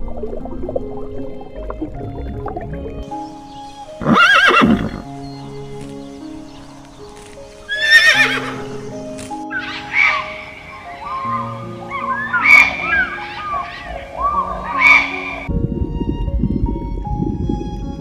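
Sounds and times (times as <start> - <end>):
background music: 0.0 - 18.0
horse whinnying: 4.0 - 5.0, 7.7 - 8.6, 9.6 - 15.5.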